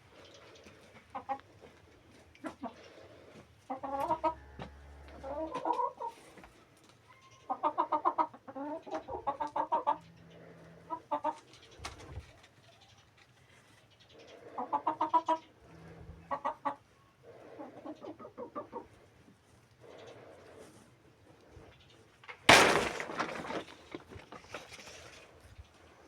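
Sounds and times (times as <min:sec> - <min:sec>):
chickens clucking: 0:00.1 - 0:06.5, 0:07.1 - 0:15.6, 0:16.3 - 0:19.3.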